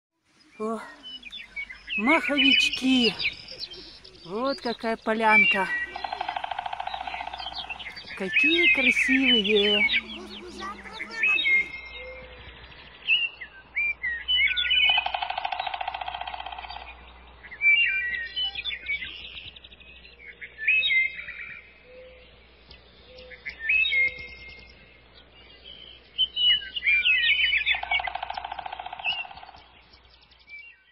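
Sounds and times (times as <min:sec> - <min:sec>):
birds singing: 0:00.3 - 0:30.9
long rattling bird trill: 0:00.5 - 0:12.2, 0:14.4 - 0:18.5, 0:26.8 - 0:29.8.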